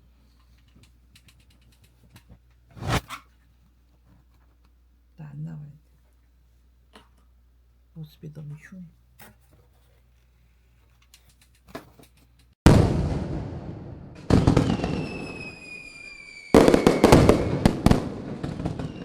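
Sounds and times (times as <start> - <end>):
fireworks bursting: 2.7 - 3.2, 16.5 - 19.0
faint falling whistles: 14.6 - 17.6, 18.8 - 19.0.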